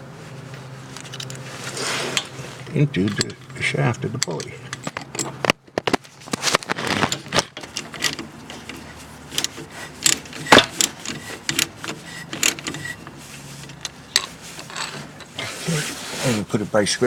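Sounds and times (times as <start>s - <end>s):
metal tools clinking: 0.5s - 16.4s
ratchet wrench clicking: 7.5s - 13.1s.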